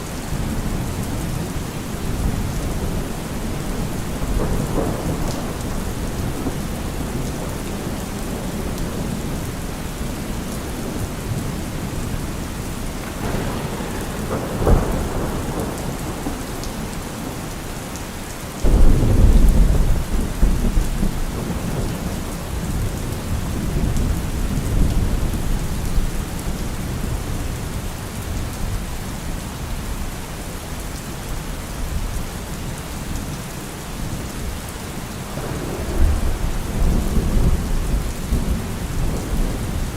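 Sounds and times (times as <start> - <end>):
heavy rain: 0.0 - 39.9
thunder rumbling: 0.3 - 27.5, 35.2 - 39.9
loud crack of thunder: 2.1 - 9.5, 10.8 - 18.0, 18.6 - 26.1, 35.3 - 39.9.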